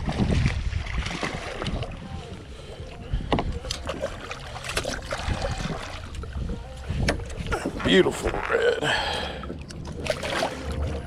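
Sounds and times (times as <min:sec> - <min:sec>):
wind buffeting microphone: 0:00.0 - 0:03.8
water lapping at boat: 0:00.0 - 0:11.0
water splashes: 0:00.0 - 0:11.0.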